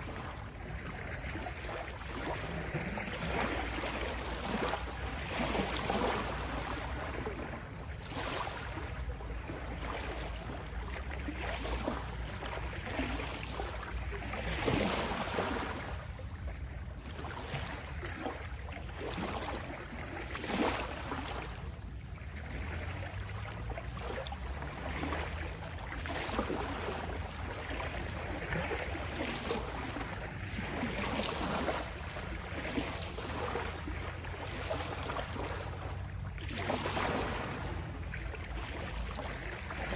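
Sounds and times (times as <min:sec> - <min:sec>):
small waves lapping at shore: 0:00.0 - 0:39.9
low steady rumble: 0:21.0 - 0:39.9.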